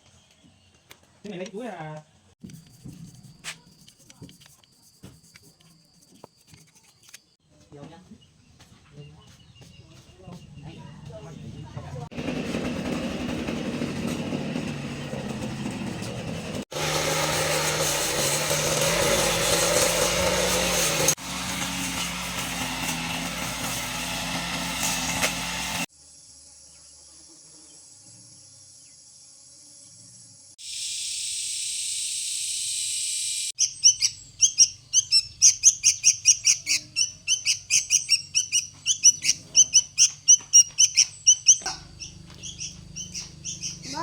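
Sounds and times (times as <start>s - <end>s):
birds chirping rapidly: 33.6s - 44.0s.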